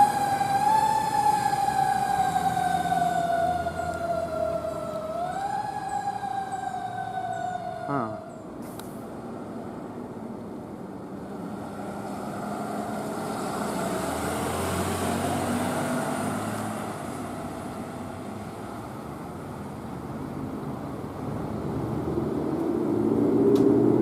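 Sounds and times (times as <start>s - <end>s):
vehicle driving past: 0.0s - 8.4s, 11.2s - 18.9s, 21.3s - 24.0s.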